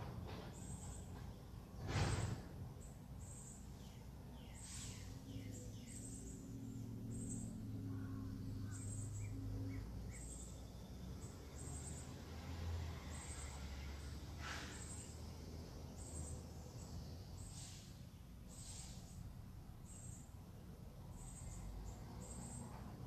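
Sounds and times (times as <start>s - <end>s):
birds chirping: 2.8s - 12.3s, 13.1s - 22.8s.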